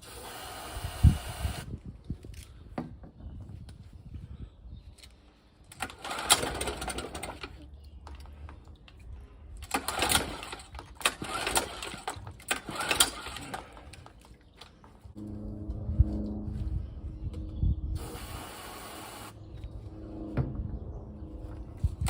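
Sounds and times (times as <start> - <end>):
outboard engine cranking: 5.7 - 8.3, 9.6 - 14.4
recoil starter pulled: 5.7 - 8.3, 9.6 - 14.7.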